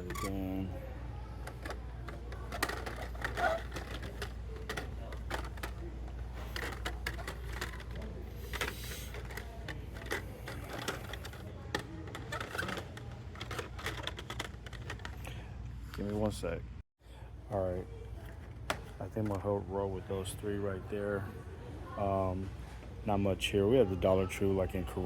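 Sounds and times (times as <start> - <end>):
plastic toy packs clicking: 1.4 - 15.2.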